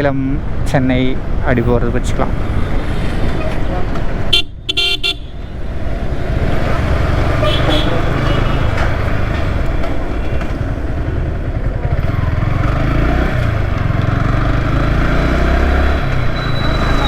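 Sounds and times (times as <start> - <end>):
motorcycle engine running: 4.8 - 17.0.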